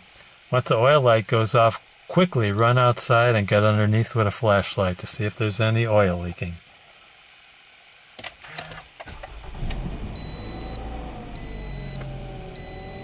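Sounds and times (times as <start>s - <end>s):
car engine starting and idling: 8.4s - 13.0s
dashboard chime beeping: 10.2s - 13.0s.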